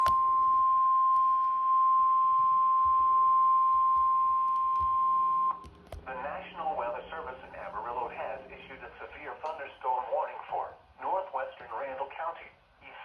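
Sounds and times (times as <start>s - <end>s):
steady high alarm beep: 0.0s - 9.2s.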